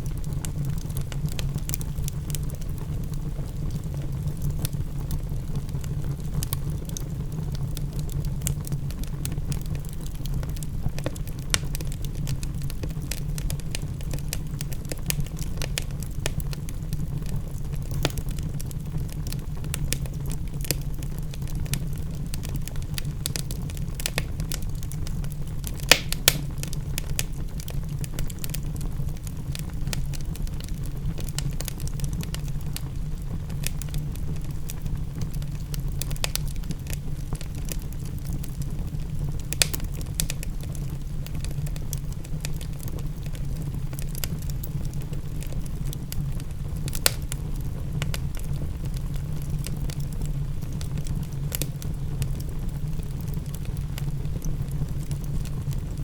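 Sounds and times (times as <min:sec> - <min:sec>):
wood fire crackling: 0:00.0 - 0:56.0
sharp fire pops: 0:17.8 - 0:20.8, 0:25.6 - 0:28.6, 0:39.4 - 0:40.5, 0:46.9 - 0:47.4.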